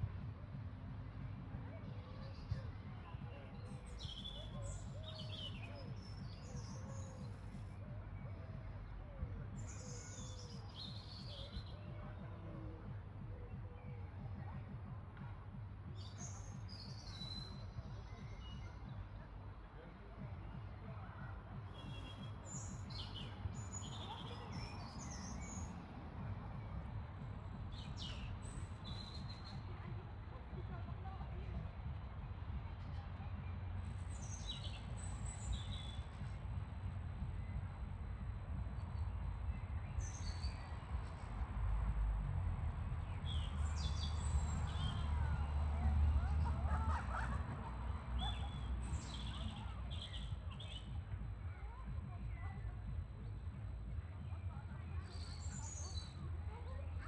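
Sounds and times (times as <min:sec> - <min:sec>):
low outdoor rumble: 0:00.0 - 0:57.0
songbirds chirping: 0:00.0 - 0:57.0.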